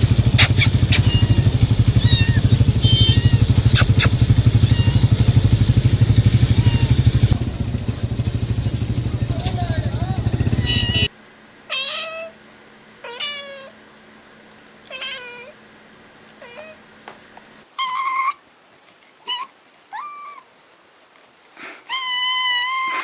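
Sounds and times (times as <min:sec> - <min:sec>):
cat meowing: 0:00.4 - 0:05.4, 0:06.3 - 0:07.4, 0:10.4 - 0:11.1, 0:11.7 - 0:12.4, 0:13.0 - 0:13.8, 0:14.9 - 0:15.6, 0:16.4 - 0:16.8, 0:17.8 - 0:18.4, 0:19.2 - 0:20.5, 0:21.9 - 0:23.0.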